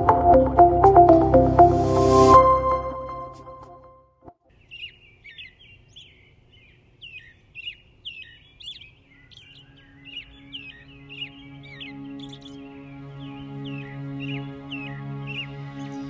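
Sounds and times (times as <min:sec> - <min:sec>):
soft low music tones: 0:00.0 - 0:03.8, 0:09.4 - 0:16.0
birds chirping: 0:04.5 - 0:16.0.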